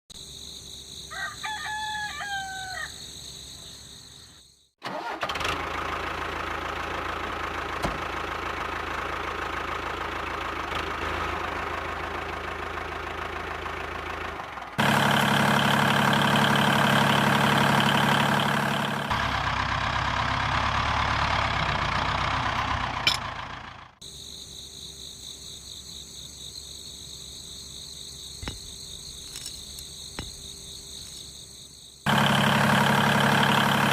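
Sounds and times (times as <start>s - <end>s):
rooster crowing: 1.0s - 3.2s.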